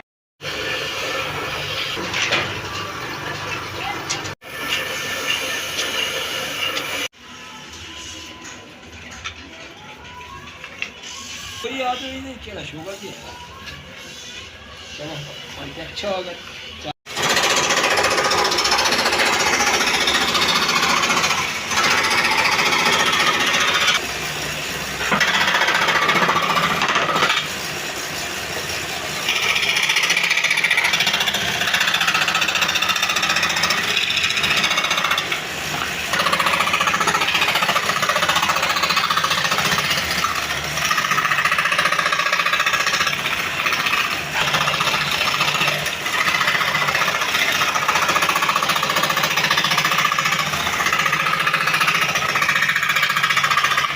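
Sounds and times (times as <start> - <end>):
power tool cutting wood: 15.7 - 53.9.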